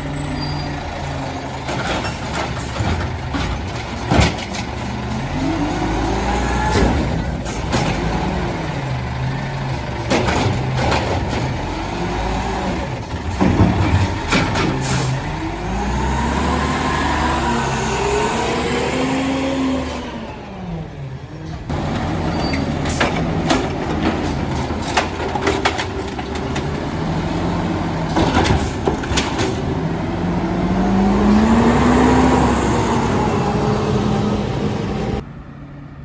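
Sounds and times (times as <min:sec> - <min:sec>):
garbage truck engine revving: 0:00.0 - 0:35.2
sharp knocks and clattering: 0:01.7 - 0:08.4, 0:09.7 - 0:11.8, 0:12.9 - 0:15.3, 0:21.7 - 0:27.1, 0:28.0 - 0:29.7.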